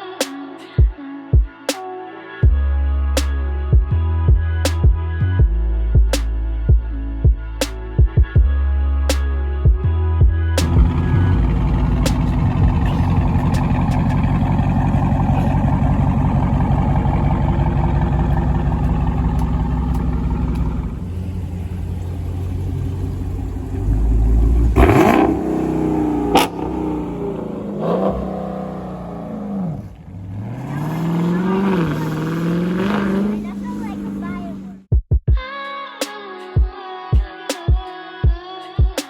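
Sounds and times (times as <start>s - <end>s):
car engine rumbling and revving: 10.5s - 34.9s.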